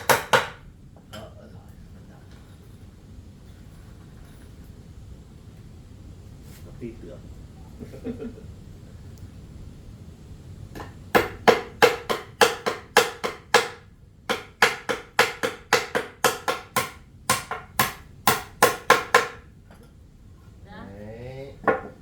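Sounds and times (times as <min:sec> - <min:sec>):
hammer driving nails: 0:00.0 - 0:00.6, 0:10.8 - 0:19.4.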